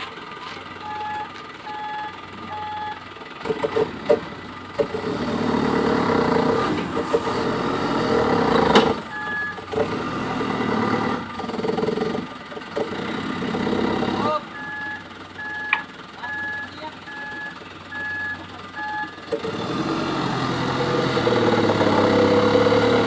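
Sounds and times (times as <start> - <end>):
dump truck engine working hard: 0.0 - 23.0
reversing alarm beeping: 0.8 - 3.1, 9.1 - 9.6, 14.5 - 19.2.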